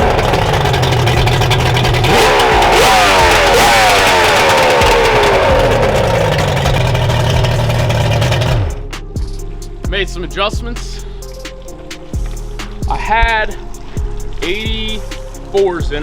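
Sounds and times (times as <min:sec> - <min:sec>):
outboard engine revving: 0:00.0 - 0:09.0.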